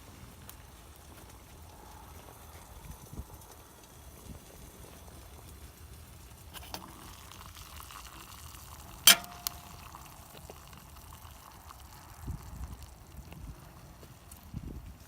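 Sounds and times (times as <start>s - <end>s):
light crackling hiss: 0.0s - 15.0s
metal cookware clinking: 9.1s - 10.0s.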